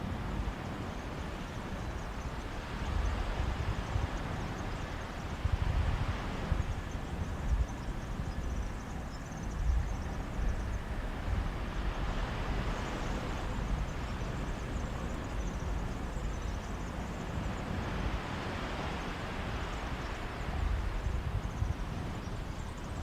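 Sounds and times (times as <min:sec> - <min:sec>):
wind gusting on microphone: 0:00.0 - 0:23.0
sea waves washing on beach: 0:10.2 - 0:23.0.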